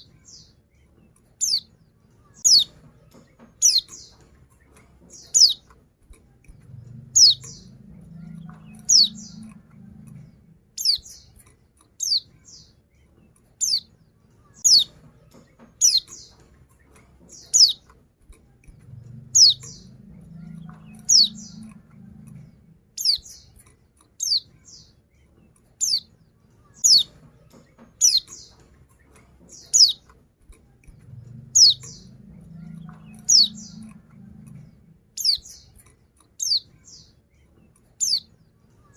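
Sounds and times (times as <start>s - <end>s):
bird calling with falling notes: 2.4s - 4.3s, 5.0s - 5.7s, 6.6s - 11.3s, 17.3s - 17.9s, 18.7s - 23.5s, 26.8s - 28.7s, 31.0s - 35.7s.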